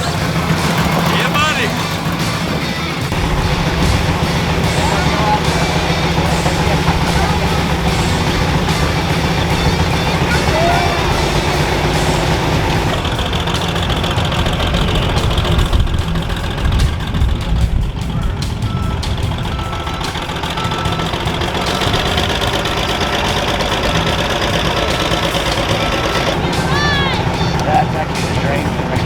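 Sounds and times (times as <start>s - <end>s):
heavy truck engine running: 0.0s - 29.0s
reversing beeper: 3.1s - 14.6s, 18.1s - 29.0s.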